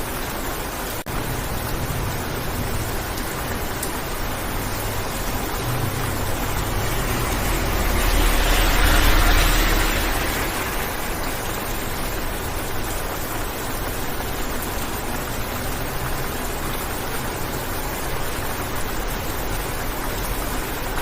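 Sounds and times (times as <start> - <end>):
rain hissing on car windshield: 0.3 - 21.0.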